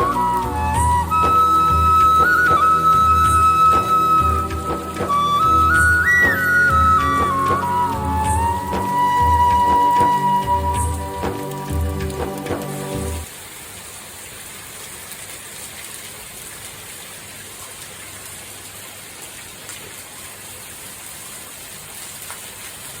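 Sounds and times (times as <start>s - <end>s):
music track: 0.0s - 13.3s
steady rain: 0.0s - 23.0s.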